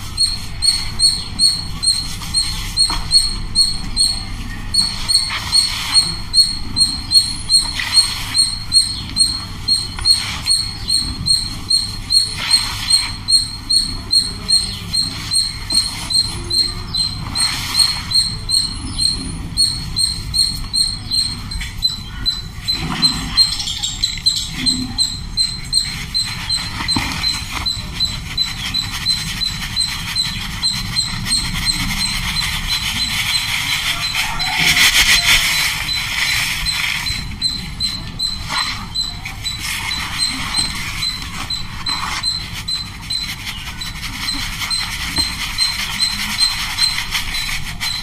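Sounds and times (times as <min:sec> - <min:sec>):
bird chirping: 0:00.0 - 0:48.0.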